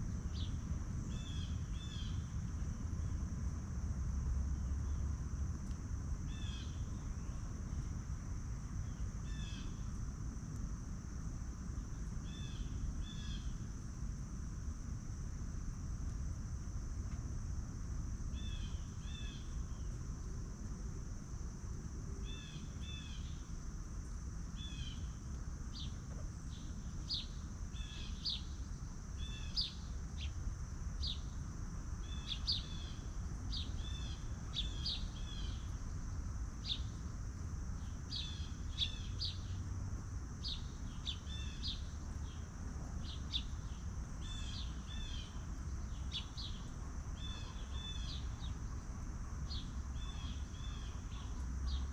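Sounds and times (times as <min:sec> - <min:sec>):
low background rumble: 0:00.0 - 0:51.9
small birds chirping: 0:25.7 - 0:31.4, 0:32.1 - 0:37.2, 0:37.8 - 0:39.6, 0:40.4 - 0:48.8, 0:49.4 - 0:51.9.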